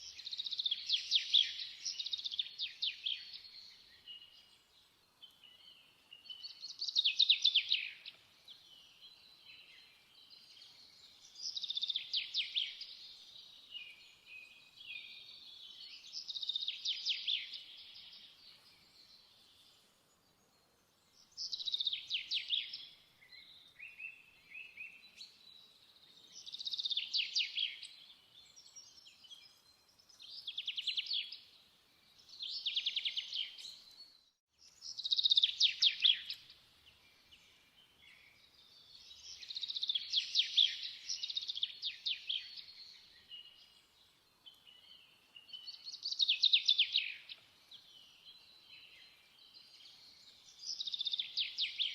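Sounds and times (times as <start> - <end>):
songbird singing trilled phrases: 0.0 - 4.5, 5.2 - 19.7, 21.2 - 25.7, 26.3 - 51.9.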